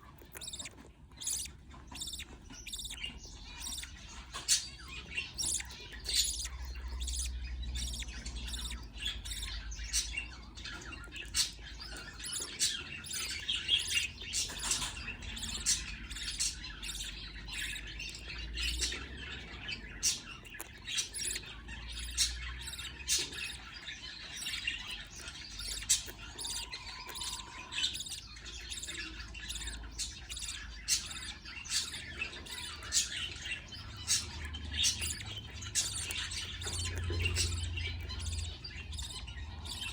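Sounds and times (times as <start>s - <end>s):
budgerigars chirping: 0.0s - 39.9s.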